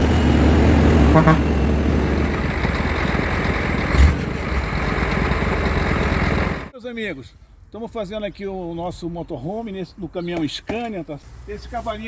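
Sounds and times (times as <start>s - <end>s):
truck engine rumbling: 0.0s - 6.7s.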